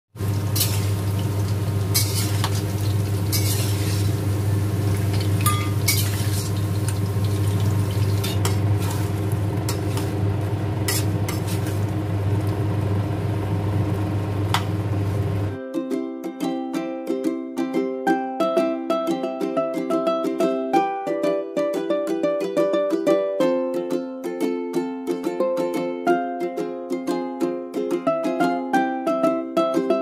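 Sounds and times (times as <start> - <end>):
chicken frying in hot oil: 0.1 - 15.6
metal spatula scraping pan: 0.6 - 1.0, 1.9 - 4.2, 5.1 - 6.6, 7.4 - 10.1, 10.9 - 11.8.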